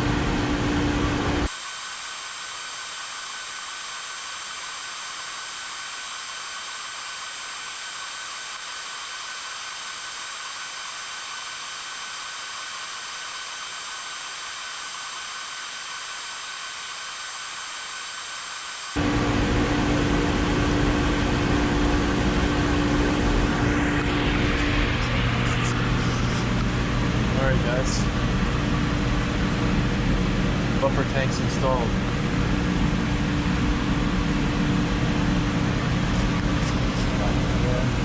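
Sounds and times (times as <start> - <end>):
high-pitched hiss: 1.5 - 19.0.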